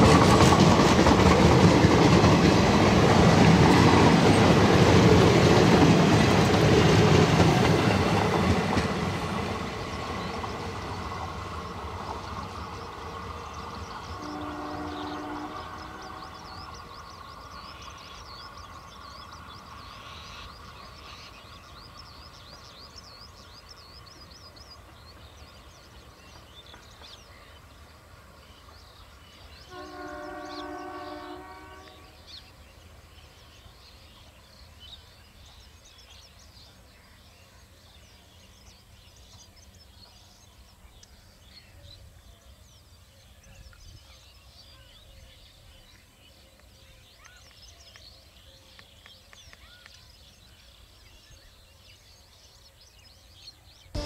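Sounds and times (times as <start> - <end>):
train coaches rumbling: 0.0 - 47.5, 50.3 - 54.0
multi-tone train horn: 14.0 - 16.8, 29.6 - 32.4.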